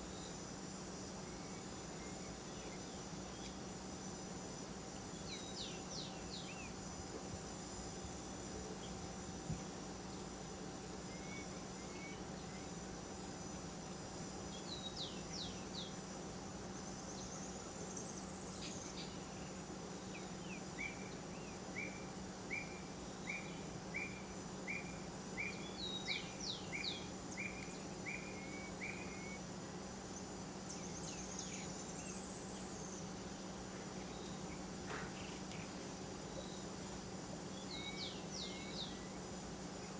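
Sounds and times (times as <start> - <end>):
short evenly spaced bird notes: 0.0 - 39.9
bird calls: 11.0 - 12.8, 16.8 - 29.5, 33.8 - 39.9.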